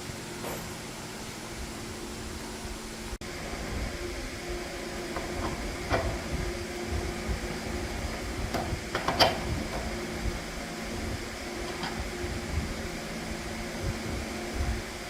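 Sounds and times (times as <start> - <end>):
steady machine hum: 0.0 - 15.0
sharp clicks and knocks: 8.5 - 9.9.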